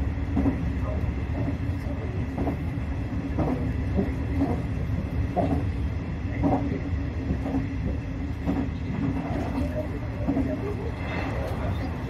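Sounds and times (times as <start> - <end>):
train wheels rumbling on rail: 0.0 - 12.0
clickety-clack knock: 0.3 - 0.6, 2.3 - 10.6.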